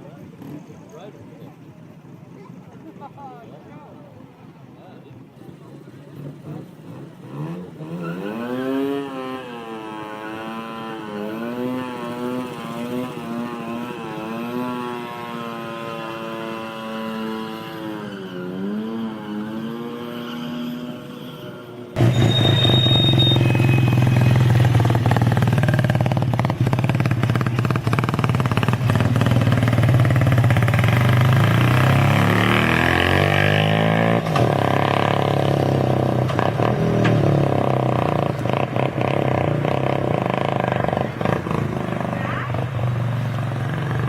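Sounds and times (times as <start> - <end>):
rotary motorcycle engine running: 22.0 - 33.1, 34.4 - 44.0.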